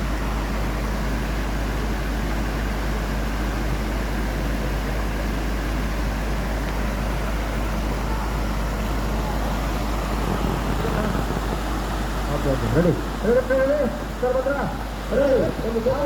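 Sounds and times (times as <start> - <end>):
waterfall rushing: 7.0 - 16.0.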